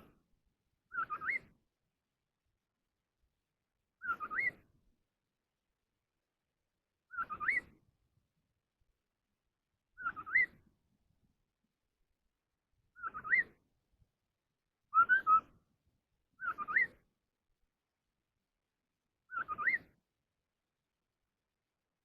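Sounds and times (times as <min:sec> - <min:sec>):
bird whistling song: 0:00.9 - 0:01.6, 0:04.0 - 0:04.7, 0:07.1 - 0:07.8, 0:10.0 - 0:10.7, 0:13.0 - 0:13.6, 0:14.9 - 0:15.6, 0:16.4 - 0:17.1, 0:19.3 - 0:20.0.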